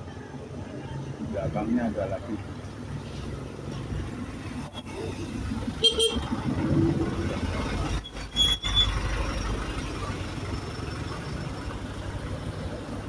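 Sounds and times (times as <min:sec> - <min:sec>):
bus engine rumbling: 0:00.0 - 0:13.0
short high-pitched squeals: 0:08.0 - 0:09.1.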